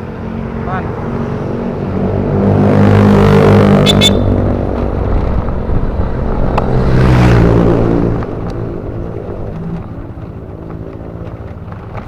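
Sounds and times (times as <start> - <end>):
high chirps: 3.8 - 4.4.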